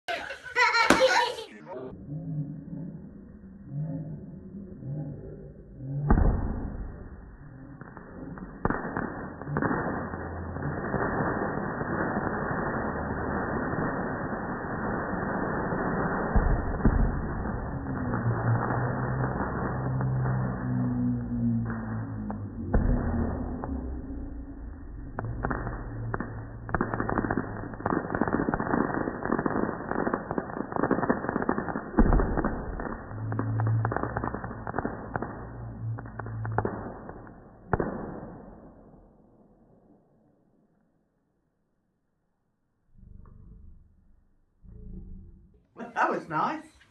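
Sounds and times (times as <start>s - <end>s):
fireworks banging: 0.0s - 1.9s, 6.0s - 39.1s
sharp cracks: 6.1s - 39.1s.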